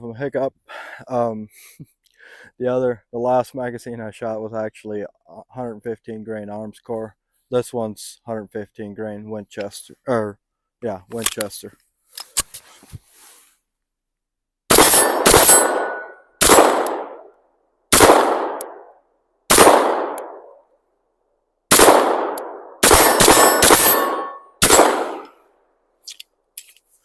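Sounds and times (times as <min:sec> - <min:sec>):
pistol shots: 0:14.7 - 0:17.2, 0:17.9 - 0:18.8, 0:19.5 - 0:20.5, 0:21.7 - 0:25.4.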